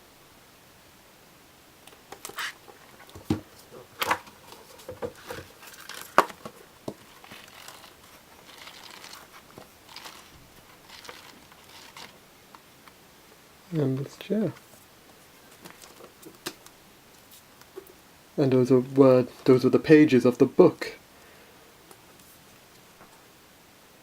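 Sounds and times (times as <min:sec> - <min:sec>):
book pages turning: 0:01.9 - 0:13.0, 0:15.5 - 0:17.9.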